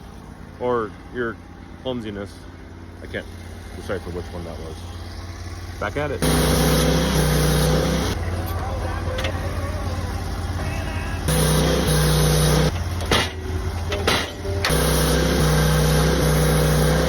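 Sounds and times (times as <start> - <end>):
sawmill engine humming: 0.0 - 17.0
saw cutting through wood: 6.2 - 8.2, 11.3 - 13.3, 14.0 - 17.0
sharp knocks: 13.0 - 14.5.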